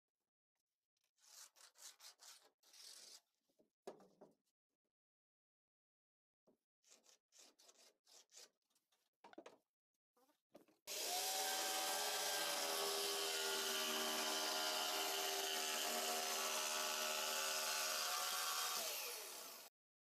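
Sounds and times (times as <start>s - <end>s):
electric saw cutting wood: 10.9s - 19.8s.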